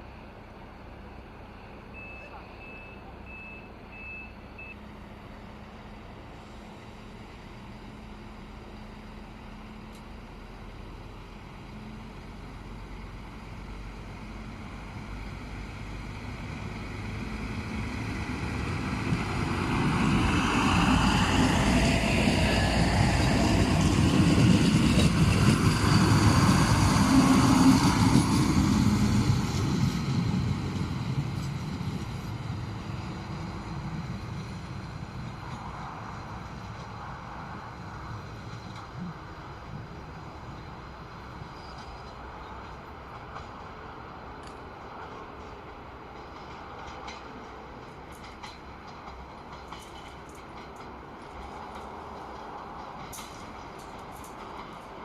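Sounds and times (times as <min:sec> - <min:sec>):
diesel train accelerating past: 0:00.0 - 0:55.0.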